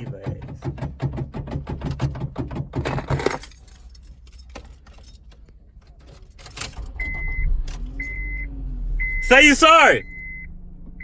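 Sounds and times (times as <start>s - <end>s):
keys jangling: 2.8s - 7.0s.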